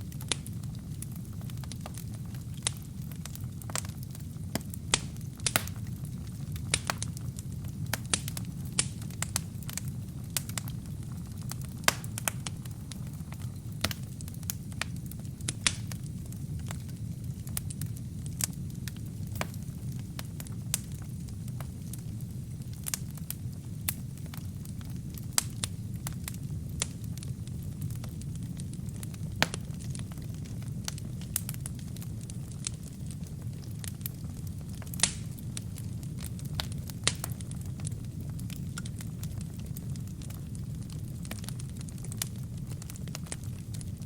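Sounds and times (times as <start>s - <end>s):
wood fire crackling in a fireplace: 0.0s - 44.0s.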